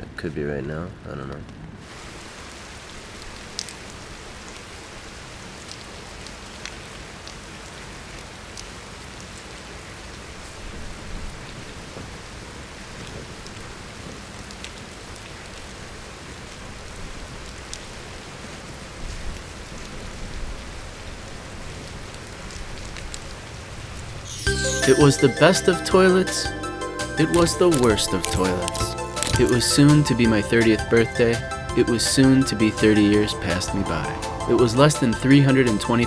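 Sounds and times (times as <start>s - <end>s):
raindrops ticking nearby: 3.0s - 9.5s, 27.2s - 30.0s.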